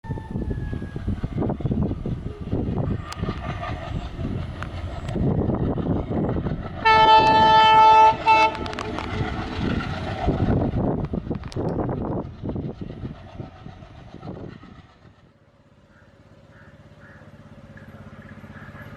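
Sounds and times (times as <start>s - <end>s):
diesel locomotive rumbling: 0.0s - 18.9s
locomotive horn blasts: 6.8s - 9.0s.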